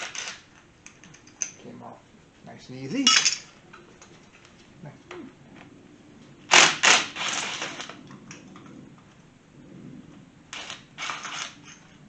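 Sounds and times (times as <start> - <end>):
metal parts clanking: 3.0 - 3.5
metal parts rattling: 3.0 - 3.5.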